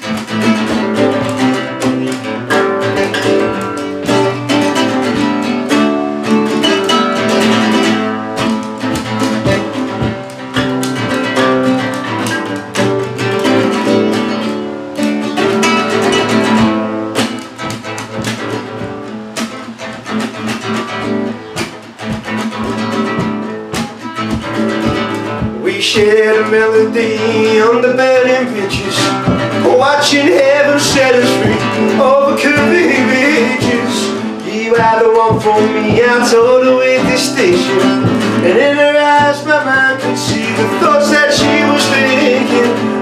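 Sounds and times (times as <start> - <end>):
acoustic guitar strumming and picking: 0.0 - 43.0.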